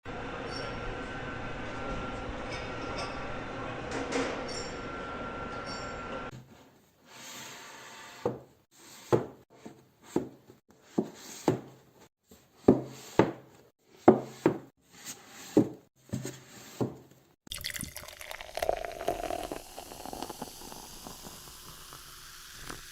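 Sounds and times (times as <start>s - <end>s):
liquid dripping: 17.5s - 22.9s
fizzing hiss: 18.2s - 22.9s.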